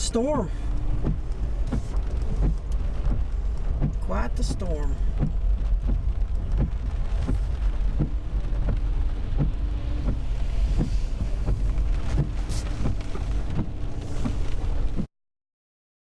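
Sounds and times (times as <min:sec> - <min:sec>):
engine and road rumble: 0:00.0 - 0:15.1.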